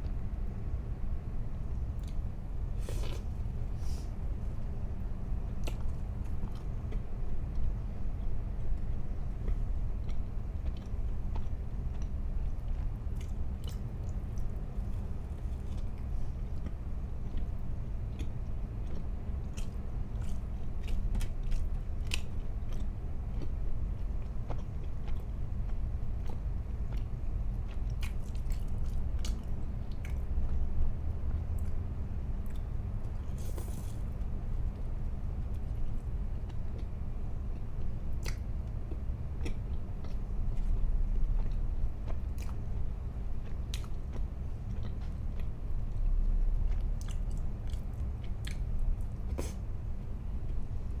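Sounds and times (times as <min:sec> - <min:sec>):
low steady hum: 0:00.0 - 0:51.0
person chewing crunchy food: 0:09.4 - 0:30.6, 0:35.5 - 0:49.6.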